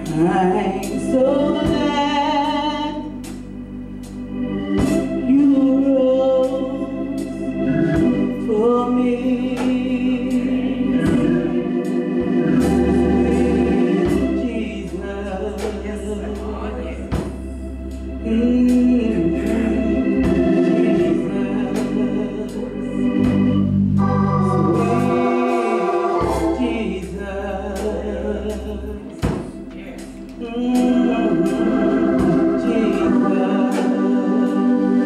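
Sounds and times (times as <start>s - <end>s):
organ sustained chords: 0.0s - 35.0s
steady bass: 0.0s - 35.0s
drum and cymbal hits: 4.8s - 5.4s, 11.0s - 14.6s, 17.1s - 17.5s, 23.2s - 34.6s.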